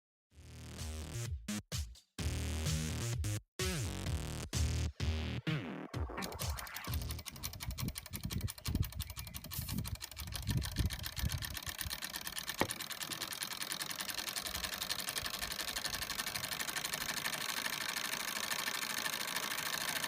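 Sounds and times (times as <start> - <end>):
stirling engine ticking rapidly: 6.0 - 20.0.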